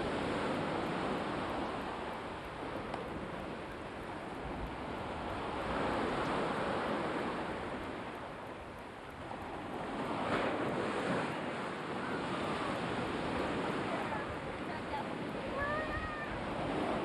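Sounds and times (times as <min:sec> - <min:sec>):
waves breaking and washing in: 0:00.0 - 0:17.0.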